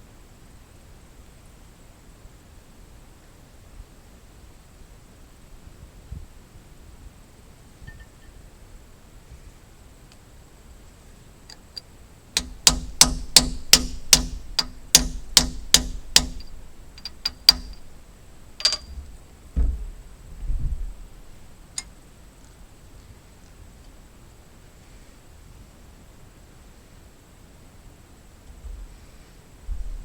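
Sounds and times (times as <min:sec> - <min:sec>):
hammer striking metal: 0:12.4 - 0:19.0
duller thumps: 0:12.4 - 0:21.8.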